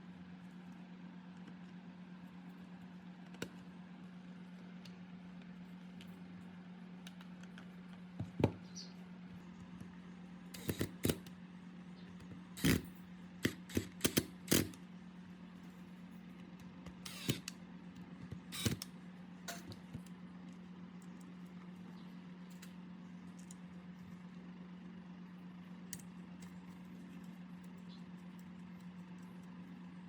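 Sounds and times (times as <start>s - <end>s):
steady low hum: 0.0s - 30.0s
tools and parts clicking: 10.6s - 11.3s, 12.3s - 14.8s, 19.5s - 20.1s.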